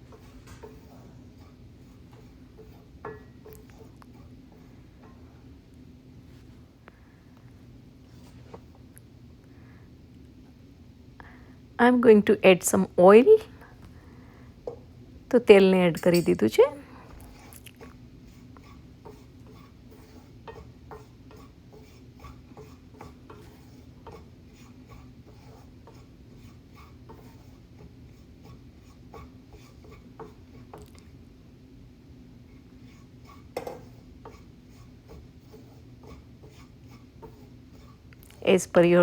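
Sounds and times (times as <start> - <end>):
spatula scraping a pan: 0.0 - 5.2, 16.1 - 31.2, 32.4 - 39.0
steady low hum: 0.0 - 39.0.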